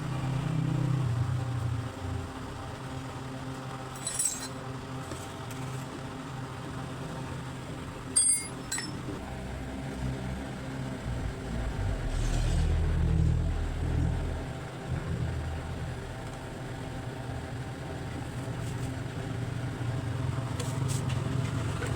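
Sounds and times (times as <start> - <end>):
sharp metallic clinks: 4.0 - 4.6, 8.2 - 9.1
low engine hum: 9.2 - 16.7.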